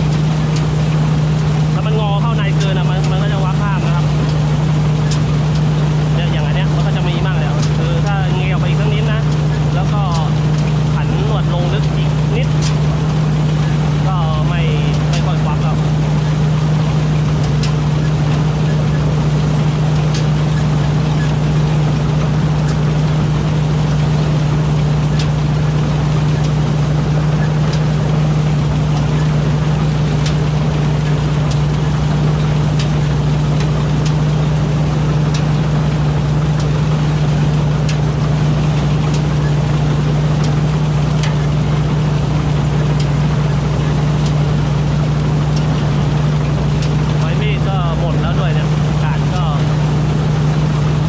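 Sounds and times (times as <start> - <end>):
harvester engine drone: 0.0 - 51.0.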